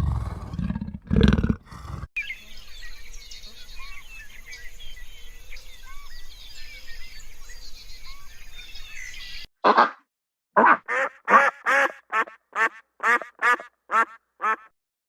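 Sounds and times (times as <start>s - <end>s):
small birds chirping: 1.8s - 9.5s.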